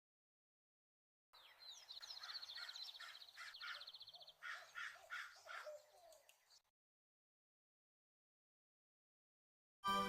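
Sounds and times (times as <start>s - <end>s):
short harsh bird calls: 1.8s - 6.6s.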